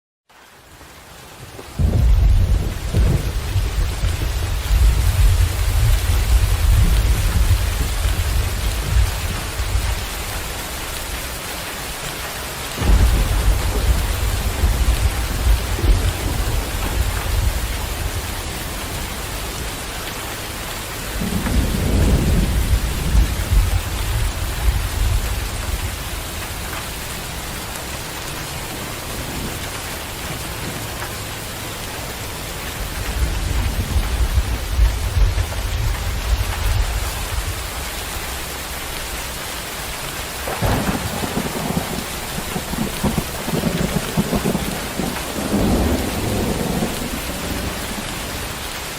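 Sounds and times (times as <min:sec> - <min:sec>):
heavy rain: 0:00.3 - 0:48.9
rolling thunder: 0:01.8 - 0:10.3, 0:12.8 - 0:19.9, 0:21.1 - 0:26.4, 0:32.8 - 0:38.0, 0:40.4 - 0:48.9.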